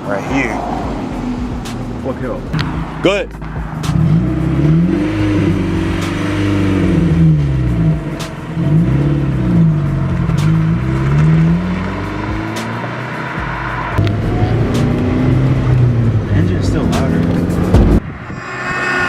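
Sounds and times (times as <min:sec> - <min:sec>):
car engine revving open exhaust: 0:00.0 - 0:18.8.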